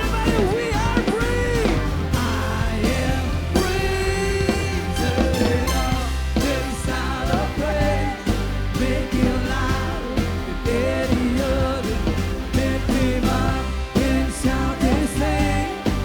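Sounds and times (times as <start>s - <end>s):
lead melody bending in pitch: 0.0s - 7.8s
drums keeping a steady beat: 0.0s - 16.0s
heavy bass: 0.0s - 16.0s
pop-rock band music: 0.0s - 16.0s.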